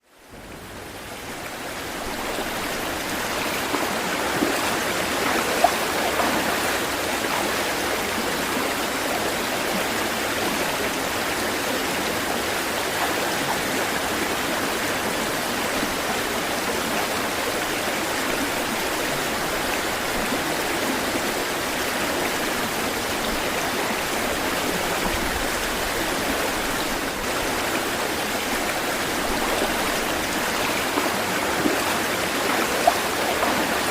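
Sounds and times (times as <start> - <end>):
flowing water rushing: 0.0 - 33.9.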